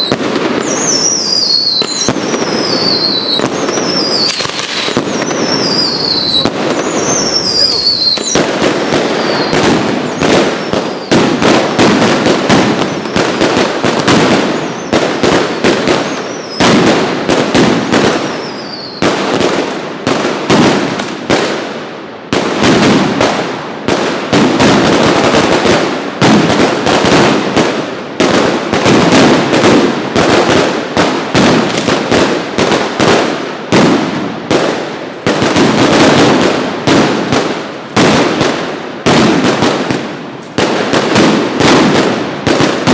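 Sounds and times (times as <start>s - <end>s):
falling whistles: 0.0s - 4.4s, 5.1s - 8.4s, 9.2s - 11.1s, 18.3s - 19.0s
firecracker bangs: 0.0s - 42.9s.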